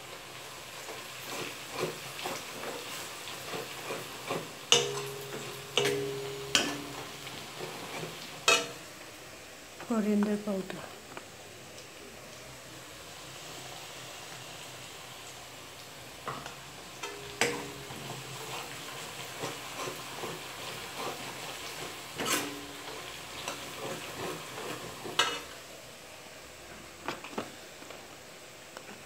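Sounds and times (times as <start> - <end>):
onions sizzling in oil: 0.0 - 29.0
metal spoon clinking against pan: 4.3 - 7.1, 8.4 - 8.8, 16.3 - 18.0.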